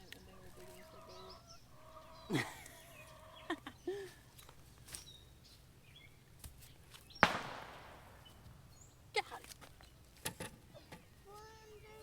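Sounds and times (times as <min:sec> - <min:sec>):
poultry clucking: 0:00.0 - 0:04.1
rustling and clicks in soil: 0:04.0 - 0:05.7, 0:06.3 - 0:07.3, 0:09.2 - 0:12.0.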